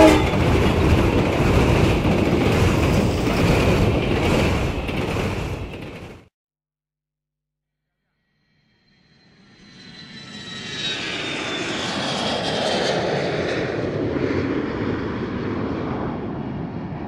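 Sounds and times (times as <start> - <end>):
airplane roar: 0.0 - 5.0, 9.4 - 17.0.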